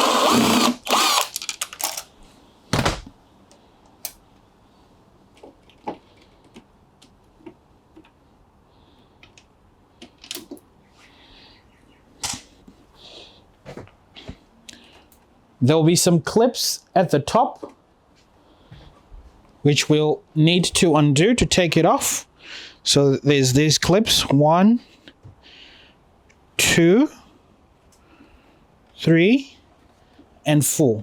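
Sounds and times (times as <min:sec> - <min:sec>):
cordless drill running: 0:00.0 - 0:01.4.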